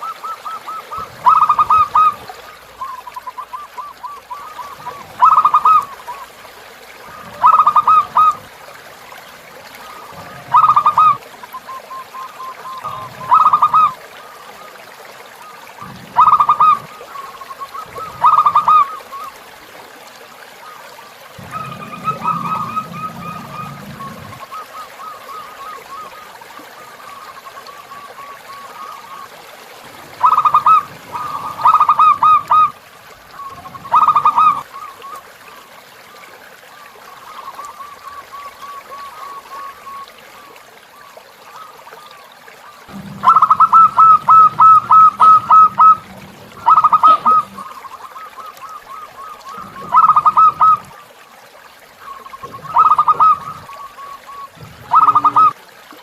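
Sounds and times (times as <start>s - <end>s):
doves cooing in staccato bursts: 0.0s - 14.5s, 15.7s - 19.6s, 21.2s - 26.3s, 30.0s - 35.2s, 42.9s - 51.1s, 52.0s - 55.6s
faint dove cooing steadily: 0.0s - 19.8s, 20.4s - 55.6s
trickling river water: 0.0s - 56.0s.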